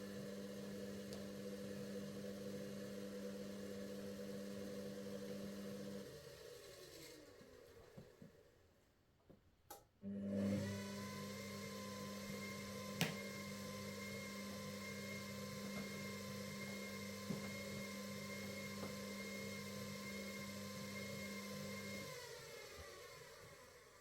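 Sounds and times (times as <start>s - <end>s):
washing machine motor humming: 10.1s - 23.8s.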